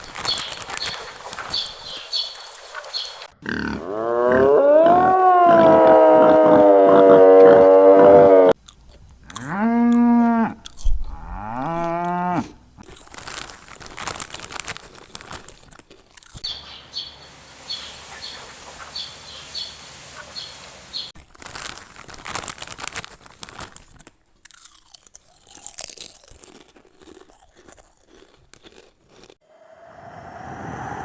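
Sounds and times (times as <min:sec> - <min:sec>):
dense crunching and crackling: 0:00.0 - 0:03.0, 0:10.6 - 0:16.5, 0:21.1 - 0:29.4
bird chirping: 0:00.0 - 0:03.3, 0:16.4 - 0:21.2.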